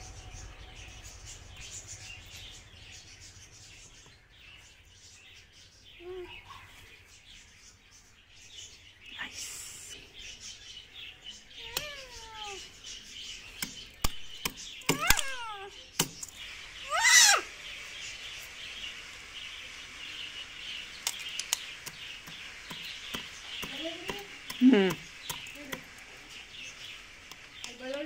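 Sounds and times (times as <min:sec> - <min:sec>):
falling whistled bird calls: 0:11.3 - 0:27.9
sharp clicks: 0:13.6 - 0:16.4, 0:21.0 - 0:26.0
steady high hiss: 0:14.7 - 0:28.0.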